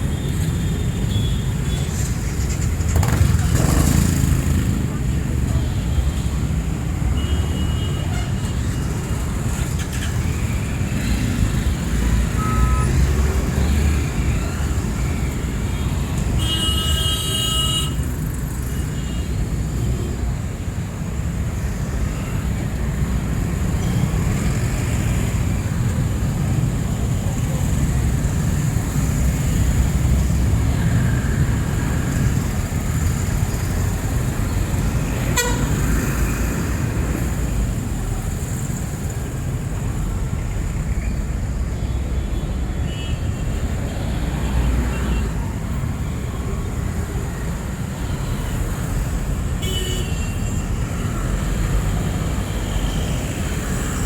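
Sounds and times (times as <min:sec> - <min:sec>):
street traffic rumble: 0:00.0 - 0:54.0
vehicle horn tooting: 0:35.3 - 0:35.8.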